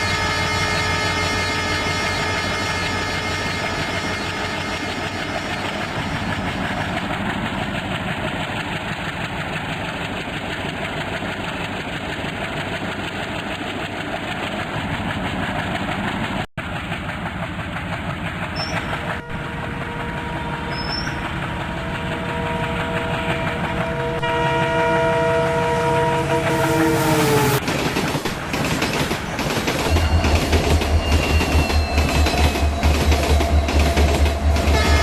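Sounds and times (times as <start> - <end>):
diesel train running: 0.0 - 35.0
faint horn-like tones: 19.2 - 27.6, 31.8 - 35.0.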